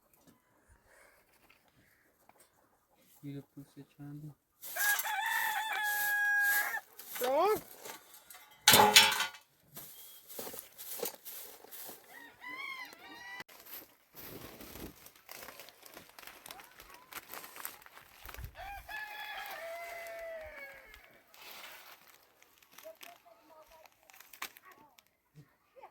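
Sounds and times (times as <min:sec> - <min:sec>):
chickens calling: 0:04.4 - 0:09.2, 0:11.3 - 0:13.5
rooster crowing: 0:04.6 - 0:06.9, 0:12.0 - 0:13.5, 0:18.6 - 0:21.2.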